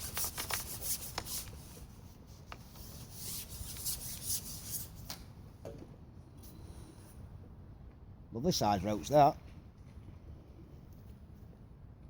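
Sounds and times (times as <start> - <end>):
rubbing or scraping strokes: 0.0 - 5.1.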